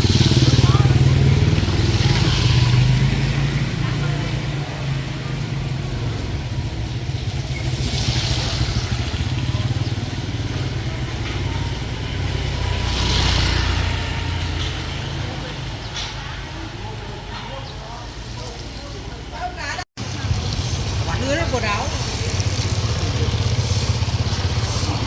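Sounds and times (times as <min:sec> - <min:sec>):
motor engine running: 0:20.0 - 0:25.0.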